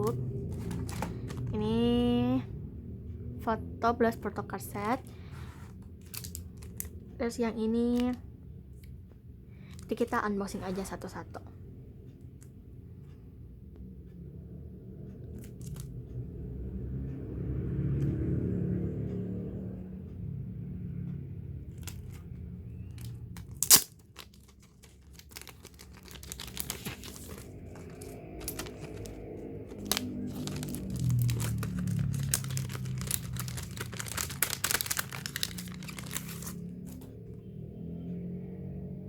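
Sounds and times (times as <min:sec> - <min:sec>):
packaging torn and crinkled: 0:00.4 - 0:01.5, 0:06.1 - 0:06.9, 0:23.4 - 0:37.0.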